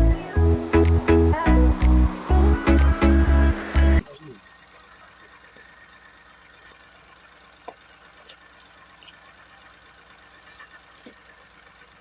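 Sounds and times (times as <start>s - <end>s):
car engine idling: 0.0s - 4.0s.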